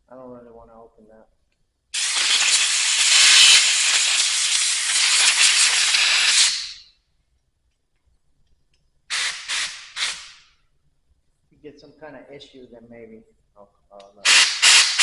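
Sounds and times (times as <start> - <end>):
compressed air blow gun hissing: 2.0 - 6.8, 9.1 - 10.5, 14.2 - 15.0.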